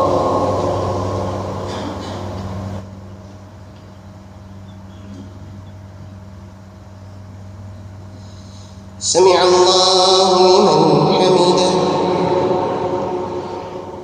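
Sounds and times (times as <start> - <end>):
steady low hum: 0.0 - 14.0
man's call over sound system: 9.0 - 14.0.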